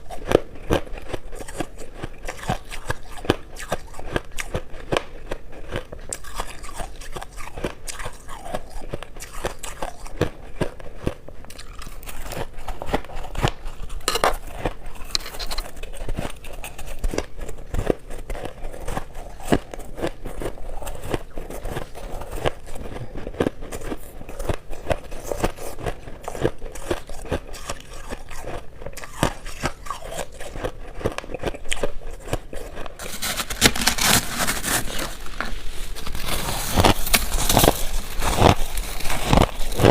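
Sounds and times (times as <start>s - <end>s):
shaved ice crunching: 33.0s - 39.9s.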